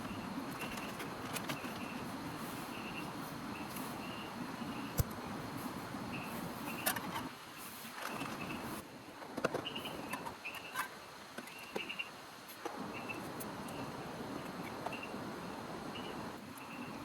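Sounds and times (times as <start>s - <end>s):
high chirping calls: 11.5s - 12.2s, 12.9s - 14.0s, 15.9s - 17.0s.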